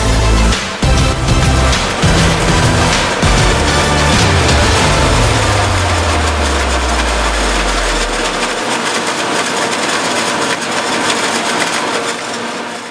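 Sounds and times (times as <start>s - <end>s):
low hum: 0.0s - 9.3s
farm machinery engine rattling: 0.0s - 12.9s.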